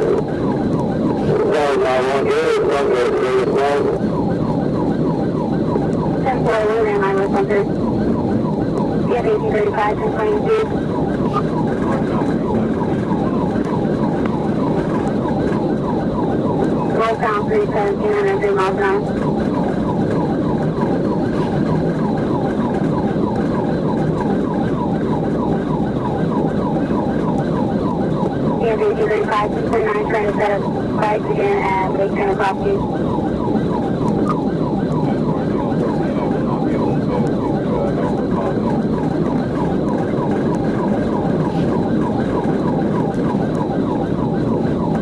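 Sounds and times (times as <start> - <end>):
police siren yelping: 0.0 - 45.0.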